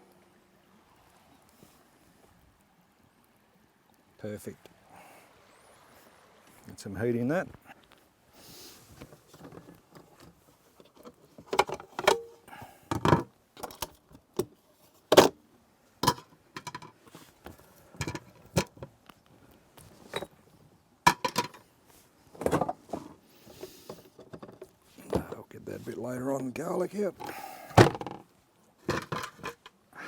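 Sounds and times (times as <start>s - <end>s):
camp cooking gear clattering: 8.9s - 15.4s, 16.0s - 19.0s, 19.9s - 20.4s, 21.0s - 21.7s, 22.3s - 29.8s.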